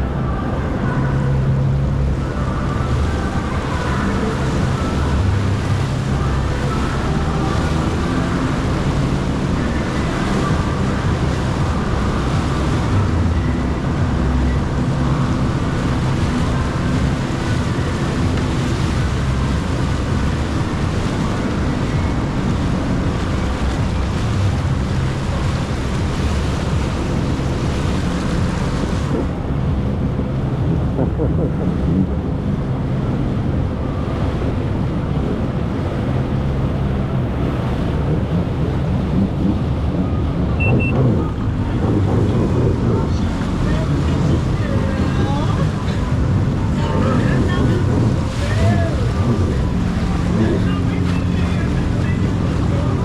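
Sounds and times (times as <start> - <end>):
jet ski engine drone: 0.0 - 53.0
rushing water: 0.0 - 53.0
wind on microphone: 0.0 - 53.0.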